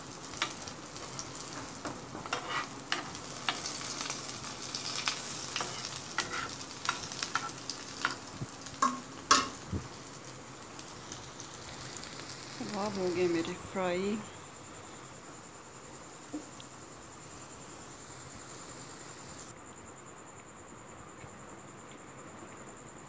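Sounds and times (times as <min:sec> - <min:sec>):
kababs sizzling in oil: 0:00.0 - 0:19.5
spatula clicking and scraping pan: 0:00.4 - 0:04.2, 0:04.8 - 0:08.2, 0:08.8 - 0:09.6.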